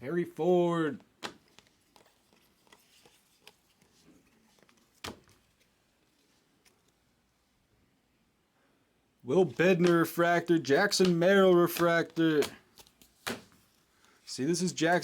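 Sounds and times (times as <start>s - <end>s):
cards rustling and ticking: 1.0s - 7.3s, 9.4s - 15.0s.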